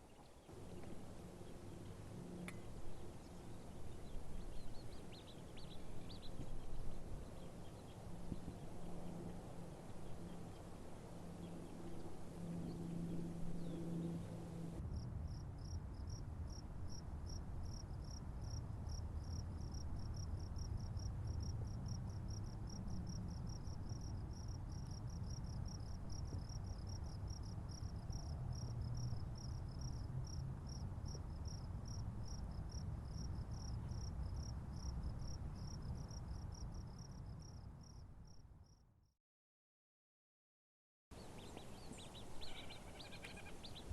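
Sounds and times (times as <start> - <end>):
crickets chirping: 10.0 - 38.8.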